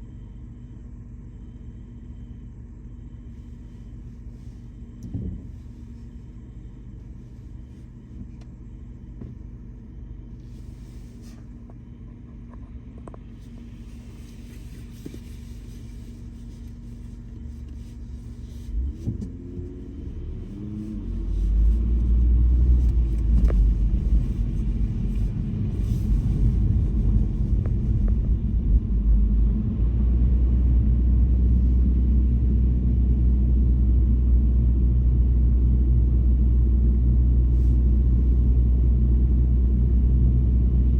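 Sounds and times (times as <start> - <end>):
car driving rumble: 0.0 - 40.9
car engine idling: 0.1 - 40.9
car pulling away: 17.3 - 34.0.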